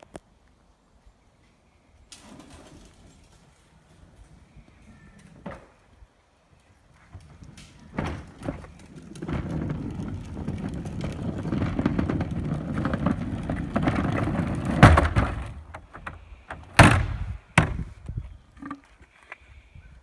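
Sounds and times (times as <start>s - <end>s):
heavy thuds: 10.6s - 18.2s.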